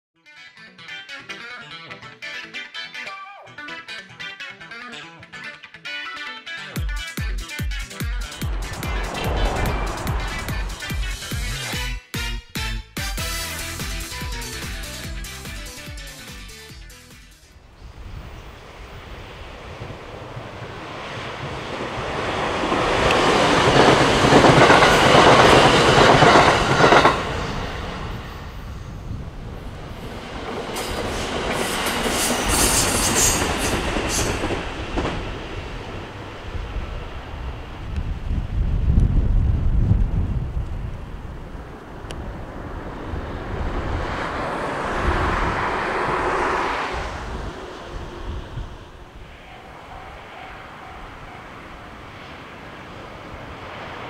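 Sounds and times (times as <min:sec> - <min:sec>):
distant electric train: 0:07.4 - 0:12.0, 0:17.5 - 0:54.0
wind on microphone: 0:08.0 - 0:11.8, 0:17.6 - 0:50.3
train wheels clattering: 0:30.2 - 0:35.6.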